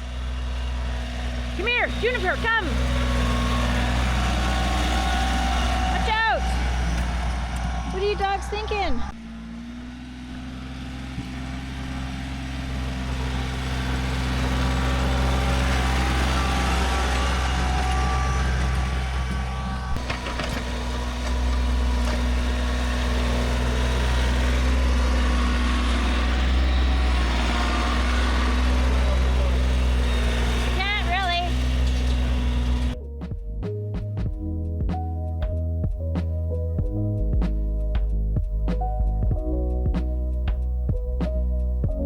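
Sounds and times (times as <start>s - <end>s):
tractor engine under load: 0.0s - 33.0s.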